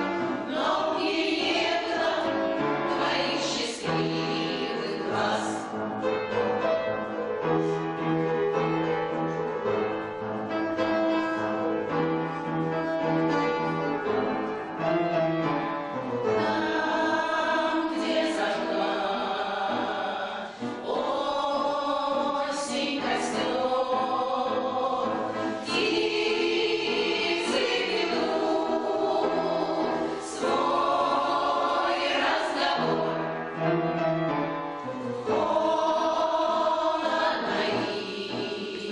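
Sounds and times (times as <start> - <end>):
choir singing: 0.0 - 5.9, 16.3 - 33.8, 35.2 - 38.9.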